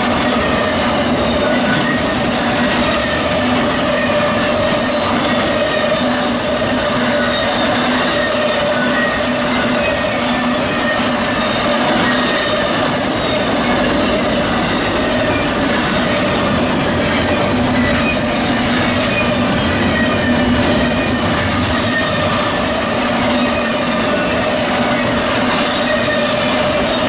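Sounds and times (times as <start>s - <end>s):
freight train wheels on rail: 0.0s - 27.0s.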